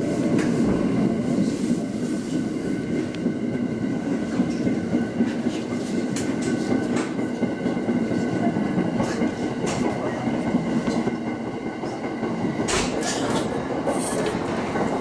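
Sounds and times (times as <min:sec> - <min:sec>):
train wheels rumbling on rail: 0:00.0 - 0:15.0
rail joint clicks: 0:04.3 - 0:11.2, 0:11.8 - 0:15.0.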